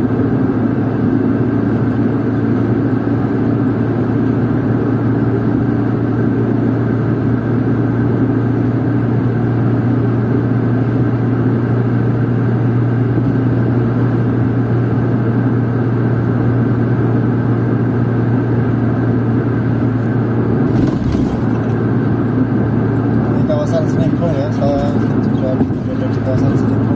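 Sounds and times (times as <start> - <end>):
car engine and tyre noise: 0.0 - 26.9.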